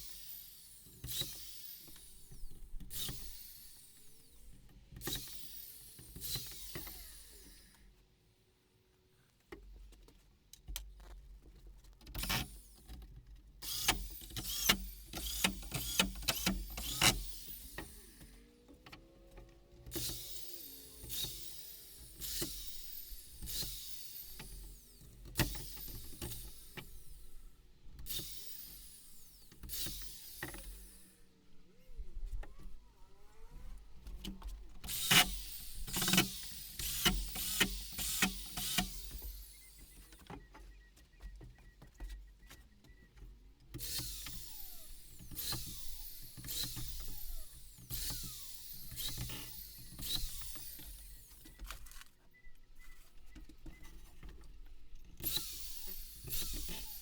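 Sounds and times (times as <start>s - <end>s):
power tool motor bursts: 0.0s - 7.7s, 12.2s - 13.0s, 13.6s - 18.5s, 19.9s - 31.2s, 34.8s - 40.2s, 43.8s - 51.6s, 55.2s - 57.0s.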